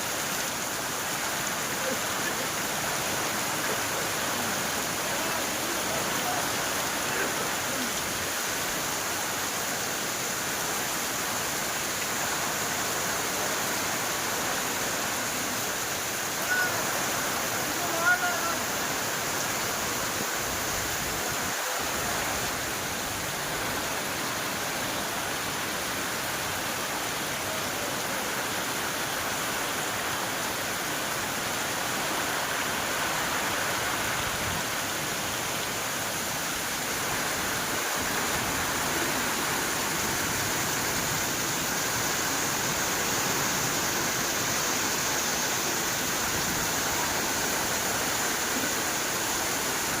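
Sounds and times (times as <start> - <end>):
heavy rain falling: 0.0 - 50.0.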